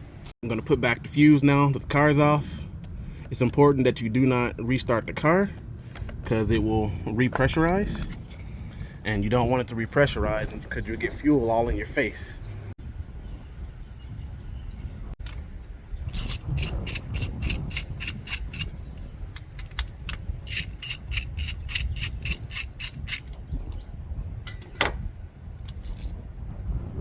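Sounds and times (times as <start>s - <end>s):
ratchet wrench clicking: 16.1s - 23.4s.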